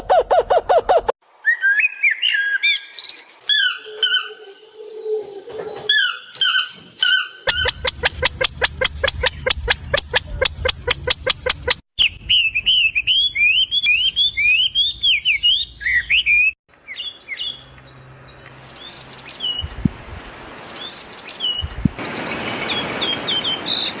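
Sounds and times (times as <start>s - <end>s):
birds chirping: 0.0s - 24.0s
short low thumps: 19.6s - 20.2s, 21.6s - 22.0s.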